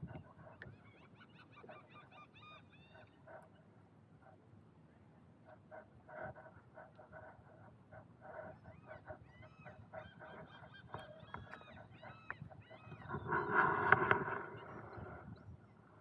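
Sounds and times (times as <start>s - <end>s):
birds calling: 8.2s - 15.4s.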